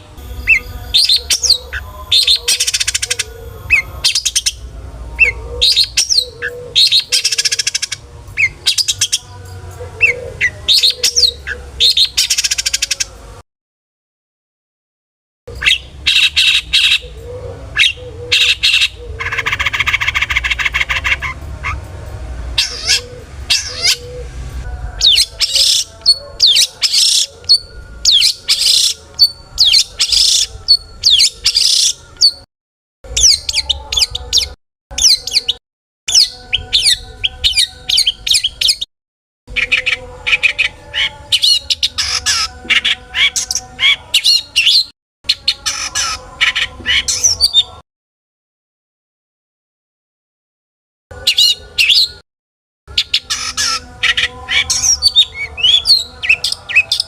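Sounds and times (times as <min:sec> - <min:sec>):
harsh buzzing bird call: 0:00.0 - 0:04.6
shrike singing sharp chirps: 0:00.0 - 0:09.4.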